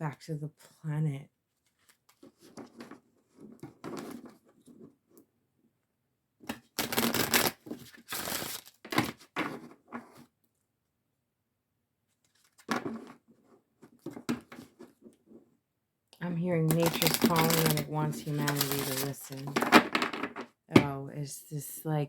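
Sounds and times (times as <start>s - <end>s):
cards clicking and sliding: 6.5s - 9.2s
cards being shuffled: 6.5s - 9.3s, 16.6s - 20.0s.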